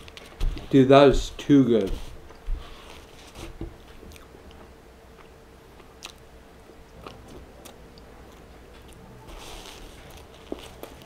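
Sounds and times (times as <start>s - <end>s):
faint steady hum: 0.0s - 11.0s
person chewing: 3.8s - 11.0s.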